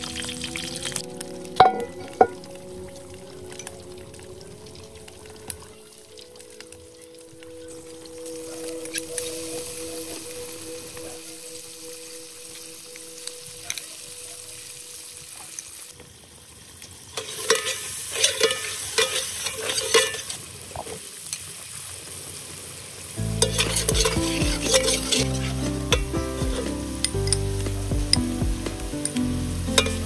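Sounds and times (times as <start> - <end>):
background music with low notes: 0.0 - 15.5, 23.2 - 30.0
chili paste sizzling in oil: 0.0 - 30.0
metal ladle scraping pot: 17.2 - 20.4, 23.4 - 26.7, 29.8 - 30.0.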